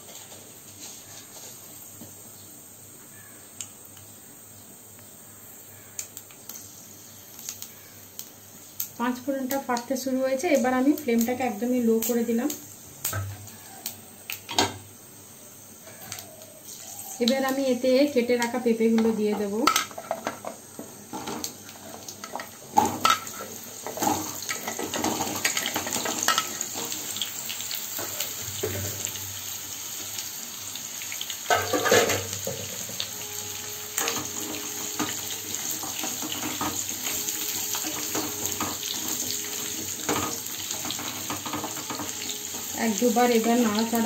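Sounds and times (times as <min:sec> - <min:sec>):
papaya frying in hot oil: 0:00.0 - 0:44.0
pieces knocking in the pan: 0:22.2 - 0:27.1, 0:31.5 - 0:33.0, 0:34.0 - 0:44.0.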